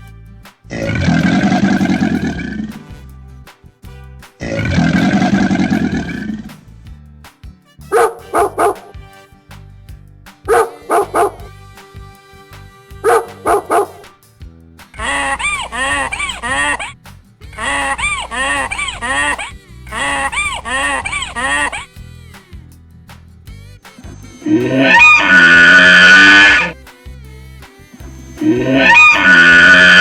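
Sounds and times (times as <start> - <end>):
background music: 0.0 - 30.0
rough animal call: 0.7 - 2.9, 4.4 - 6.6, 7.9 - 8.9, 10.5 - 11.5, 13.0 - 14.0, 15.0 - 22.0, 24.2 - 26.8, 28.4 - 30.0
goose honking: 7.9 - 8.9, 10.5 - 11.5, 13.0 - 14.0, 15.0 - 22.0, 24.1 - 26.8, 28.4 - 30.0
dog barking: 8.0 - 8.9, 10.5 - 11.4, 13.1 - 14.0.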